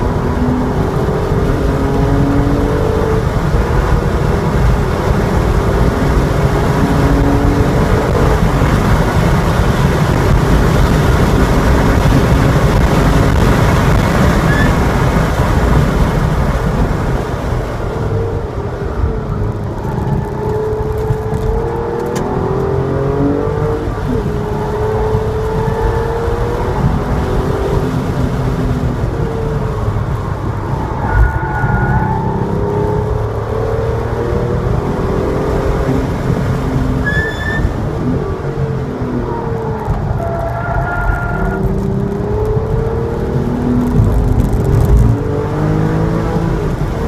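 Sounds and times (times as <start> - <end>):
car engine revving hard: 0.0 - 18.6, 19.2 - 37.0, 37.6 - 47.0
wind and road noise: 0.0 - 47.0.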